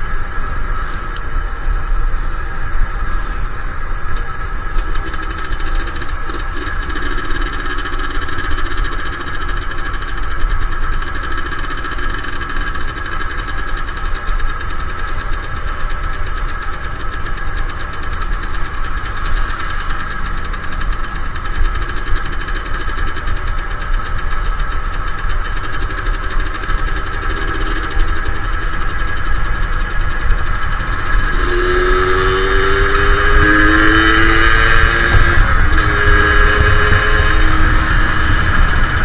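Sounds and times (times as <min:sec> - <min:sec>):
motorcycle engine running: 0:00.0 - 0:39.0
wind rumble on microphone: 0:25.8 - 0:39.0.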